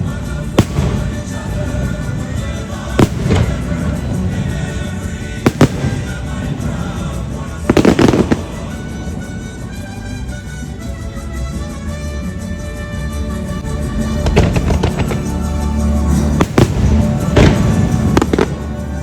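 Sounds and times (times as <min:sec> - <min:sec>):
fireworks bangs: 0:00.0 - 0:09.8, 0:13.6 - 0:15.6, 0:16.2 - 0:19.0
fireworks crackling: 0:00.0 - 0:19.0
show music: 0:00.0 - 0:19.0.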